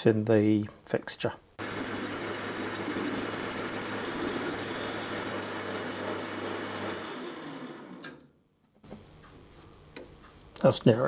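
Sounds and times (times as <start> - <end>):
metal lathe cutting: 1.6 - 8.1
lathe motor hum: 1.6 - 8.2.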